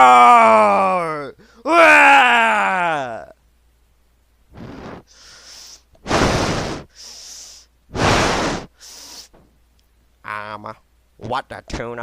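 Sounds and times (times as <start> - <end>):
person breathing heavily: 4.5 - 9.4.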